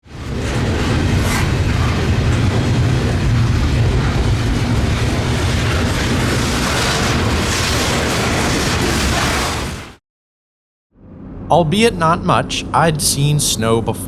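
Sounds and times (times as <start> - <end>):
freight train passing: 0.1 - 8.9.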